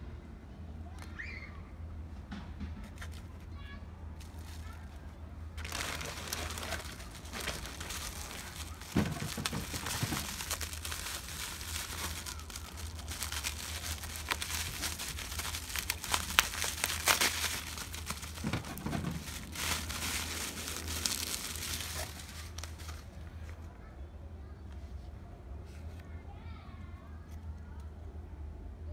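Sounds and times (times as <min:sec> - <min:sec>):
plastic packaging crinkling: 0:04.2 - 0:23.4.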